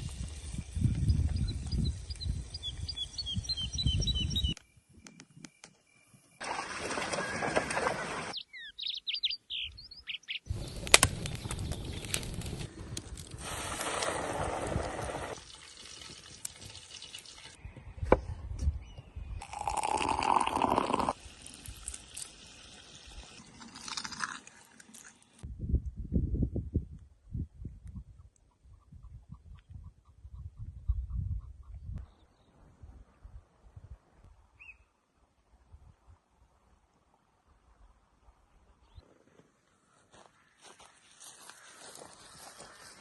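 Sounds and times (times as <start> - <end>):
bird chirps: 1.0 - 6.2, 8.3 - 12.1, 34.6 - 35.0
running water: 13.4 - 17.6, 19.4 - 25.4.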